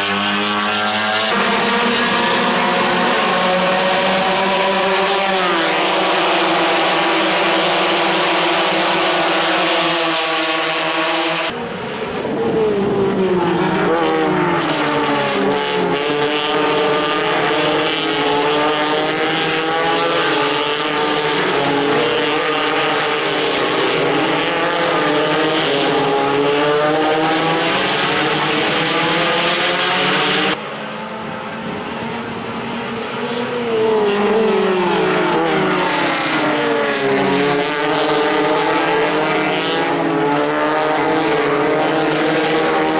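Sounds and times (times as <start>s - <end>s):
racing car engines at high revs: 0.0s - 42.9s.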